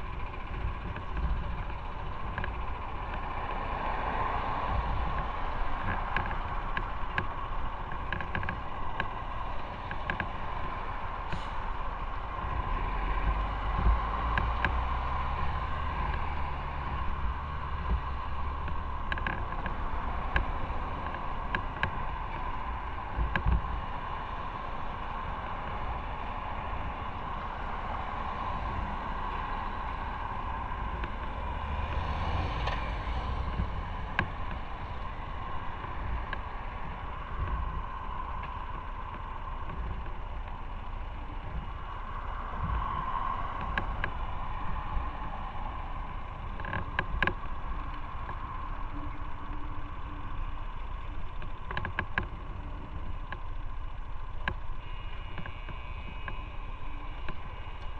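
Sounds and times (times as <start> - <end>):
motorcycle engine running: 0.0 - 57.9
small clicks and knocks: 0.0 - 57.9
wind rushing over microphone: 0.0 - 57.9.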